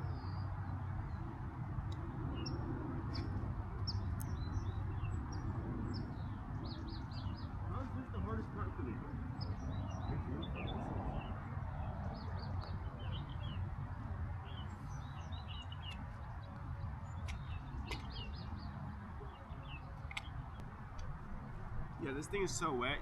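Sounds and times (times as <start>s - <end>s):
small birds chirping: 0.0s - 21.1s
steady low rumble: 0.0s - 23.0s
sharp clicks: 20.0s - 21.1s.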